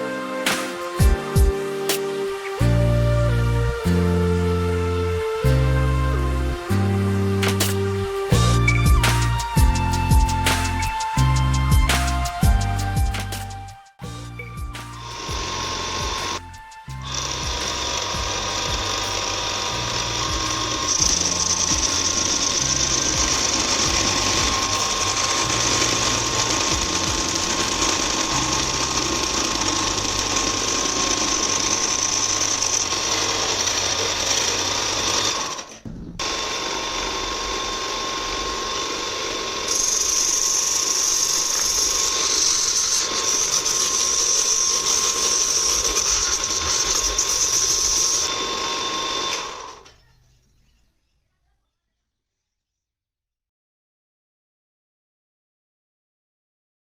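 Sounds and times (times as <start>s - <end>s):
sewing machine motor whining: 15.0s - 49.9s.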